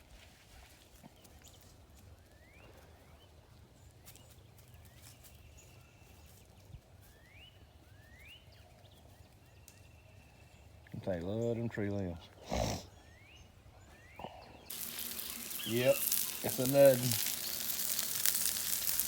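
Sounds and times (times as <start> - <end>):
bird chirping: 12.9 - 19.0.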